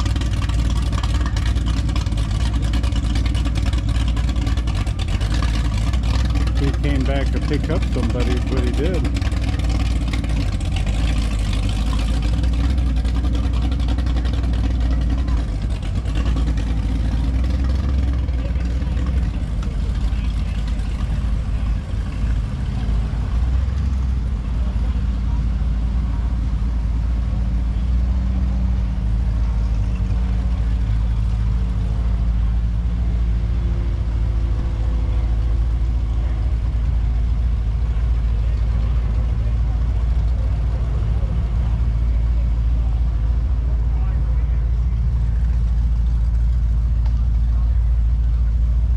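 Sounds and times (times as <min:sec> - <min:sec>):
motorboat engine running: 0:00.0 - 0:48.9.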